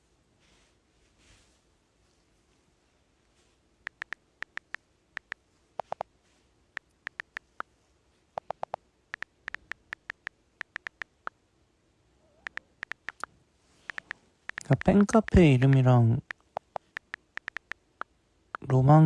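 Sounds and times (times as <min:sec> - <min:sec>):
keyboard typing: 0:03.9 - 0:06.0, 0:06.8 - 0:07.6, 0:08.4 - 0:11.3, 0:12.4 - 0:18.7.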